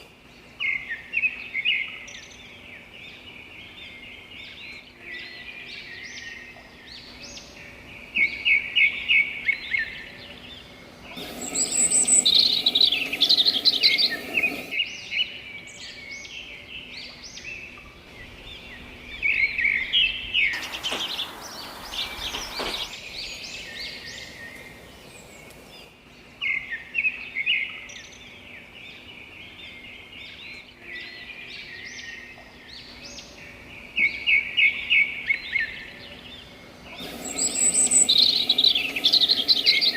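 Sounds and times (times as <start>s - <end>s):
faint steady hiss: 0.0s - 39.9s
songbirds chirping and singing: 0.0s - 39.9s
brief rush of noise: 20.6s - 23.9s.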